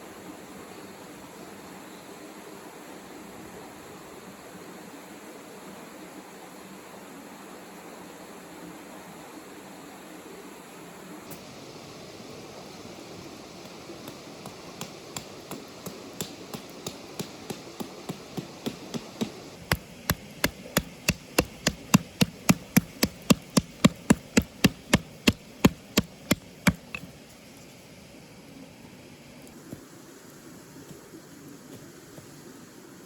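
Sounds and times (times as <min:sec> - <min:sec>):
sharp evenly spaced strikes: 0:14.1 - 0:27.0.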